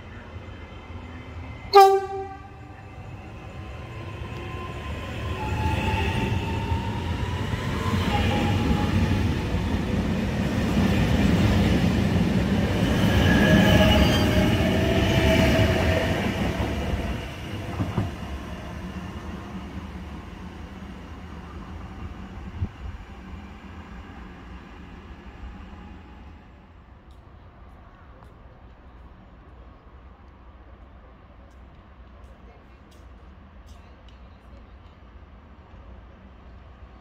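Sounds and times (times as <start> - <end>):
train passing with whine: 0.0 - 33.6
train horn toot: 1.7 - 2.8.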